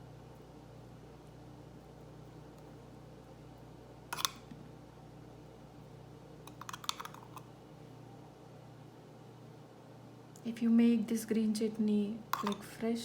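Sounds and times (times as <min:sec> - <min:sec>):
faint steady hum: 0:00.0 - 0:13.0
kitchen utensils clicking: 0:12.4 - 0:12.7.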